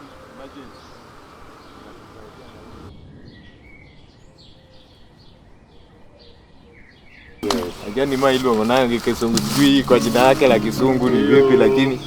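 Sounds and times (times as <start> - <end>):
birds chirping: 0.0 - 5.1, 6.8 - 12.0
steady background hiss: 7.4 - 12.0.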